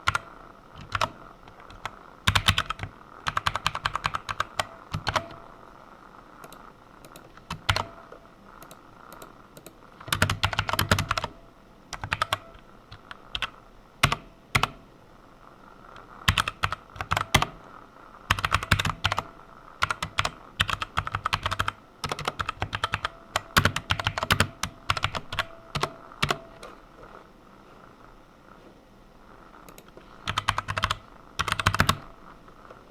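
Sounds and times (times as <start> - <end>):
typing on computer keyboard: 0.0 - 5.4, 6.4 - 8.0, 8.6 - 14.8, 16.3 - 17.6, 18.3 - 26.5, 29.7 - 32.1.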